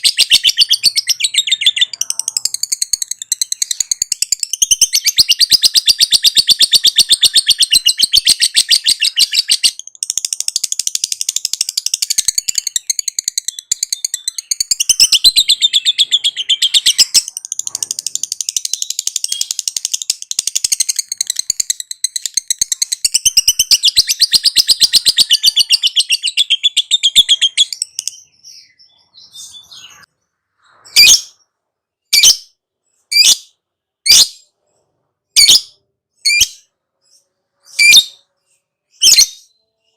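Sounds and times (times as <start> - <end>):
lovebird chattering trill: 0.0 - 28.7
bird sharp chirps: 0.0 - 39.9.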